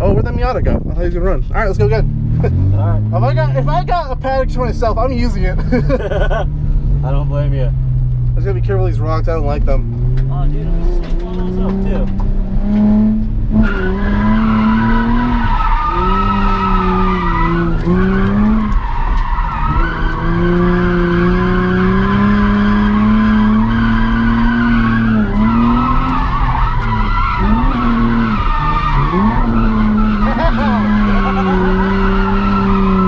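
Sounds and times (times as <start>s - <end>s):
car engine revving: 0.0s - 33.0s
tyres squealing: 13.6s - 33.0s.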